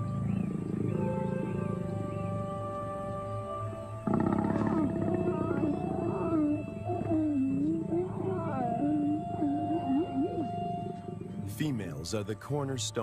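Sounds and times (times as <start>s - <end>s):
lions growling: 4.0s - 12.0s.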